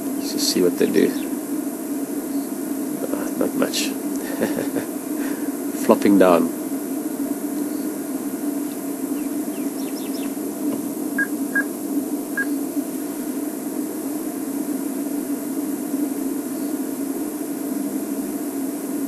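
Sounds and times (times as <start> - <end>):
steady low hum: 0.0 - 19.0
bird chirps: 9.2 - 10.4, 11.2 - 11.7, 12.4 - 12.6
whistled bird notes: 9.2 - 10.4, 11.2 - 11.7, 12.4 - 12.6.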